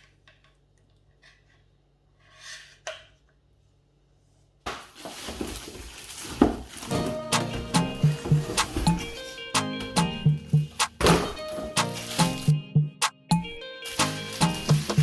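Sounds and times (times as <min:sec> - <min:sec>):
plastic rustling: 0:04.7 - 0:12.4, 0:13.9 - 0:15.0
loud music: 0:06.9 - 0:15.0.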